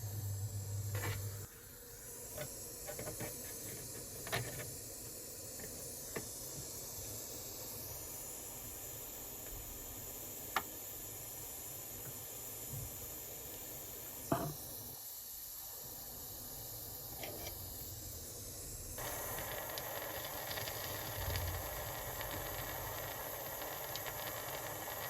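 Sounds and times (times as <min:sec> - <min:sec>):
low electric hum: 0:00.0 - 0:01.9, 0:18.6 - 0:25.0
background hiss: 0:00.0 - 0:25.0.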